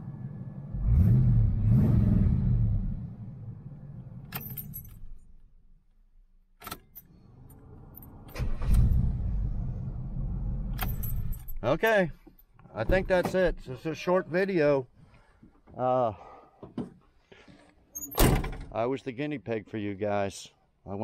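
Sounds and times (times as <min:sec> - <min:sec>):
car engine revving: 0:00.0 - 0:04.2
keys jingling: 0:04.3 - 0:05.2, 0:10.8 - 0:12.6.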